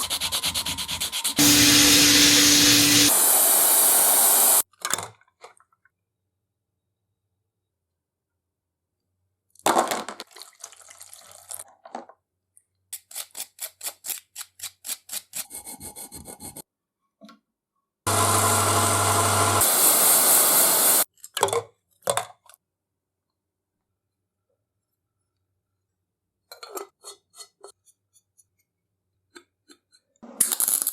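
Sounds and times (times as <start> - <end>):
loud machine noise with hum: 1.4 - 4.6, 18.1 - 21.0.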